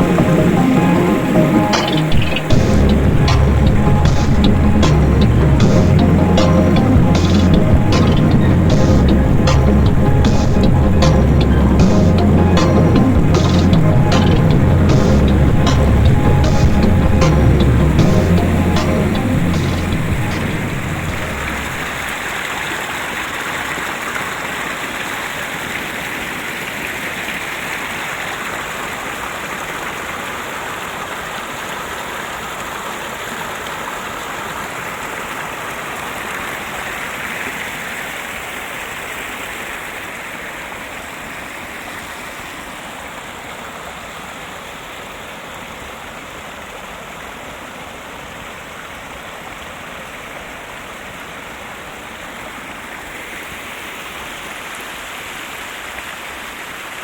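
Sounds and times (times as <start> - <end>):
running water rushing: 0.0 - 57.0.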